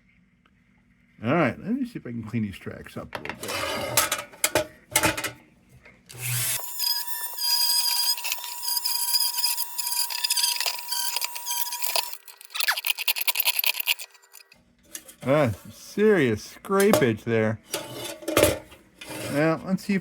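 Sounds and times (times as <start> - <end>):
handheld power tool whining: 6.1 - 14.6.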